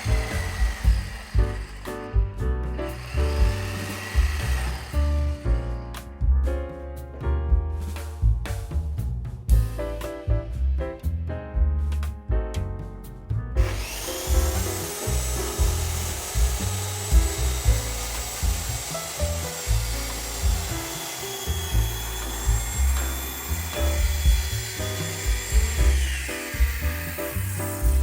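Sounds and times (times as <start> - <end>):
power saw cutting wood: 0.0 - 6.1, 13.6 - 28.0
background music with steady beat: 0.0 - 28.0.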